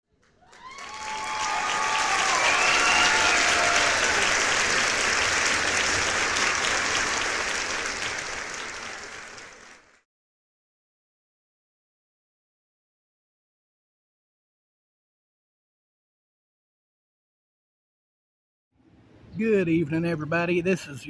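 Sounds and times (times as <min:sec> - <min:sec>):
crowd applause: 0:00.2 - 0:10.0
cheers and whoops: 0:00.4 - 0:05.0.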